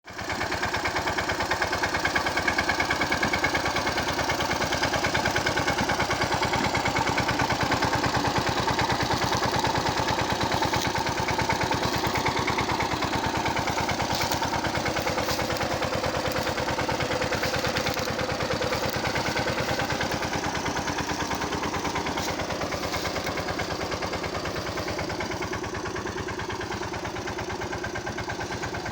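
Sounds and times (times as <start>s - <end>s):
tractor diesel engine running: 0.1s - 28.9s.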